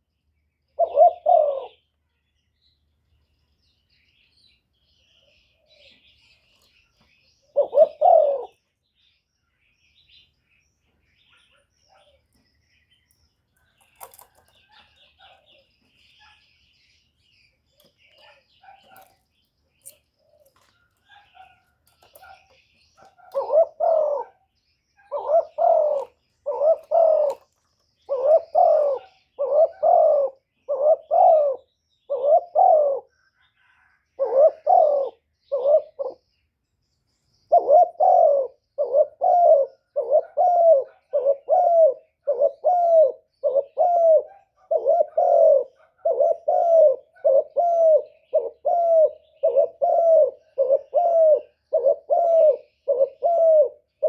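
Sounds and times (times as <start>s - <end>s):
dove cooing: 0.7s - 1.9s, 5.0s - 8.6s, 13.6s - 16.5s, 17.4s - 19.2s, 19.8s - 36.4s, 37.5s - 54.0s.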